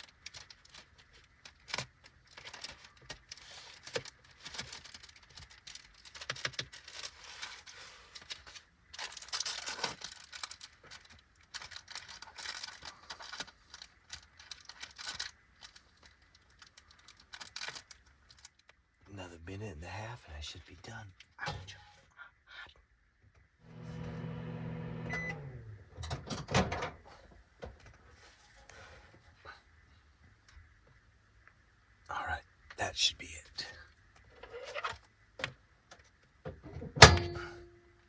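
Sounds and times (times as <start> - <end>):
plastic film crinkling and tearing: 0.0 - 18.7.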